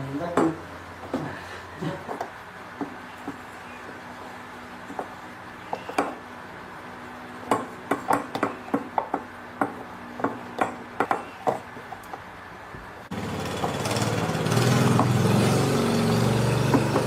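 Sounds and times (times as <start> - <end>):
sharp irregular knocks and taps: 4.9 - 6.2, 7.5 - 12.2.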